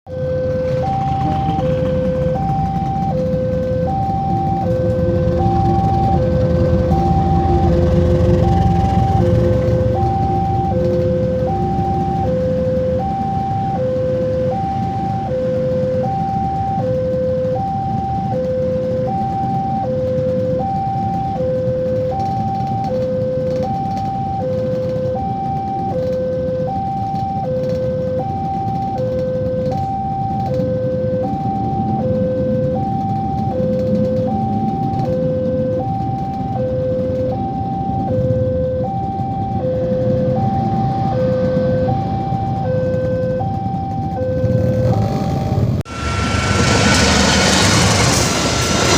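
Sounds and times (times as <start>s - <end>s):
steady low rumble: 0.1s - 15.4s, 31.1s - 48.9s
two-tone electronic warning signal: 0.1s - 48.9s.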